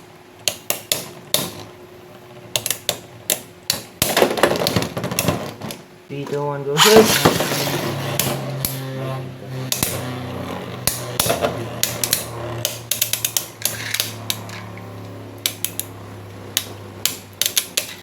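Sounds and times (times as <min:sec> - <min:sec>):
spinning tops whirring: 0:06.8 - 0:18.0
tops clacking together: 0:06.8 - 0:18.0.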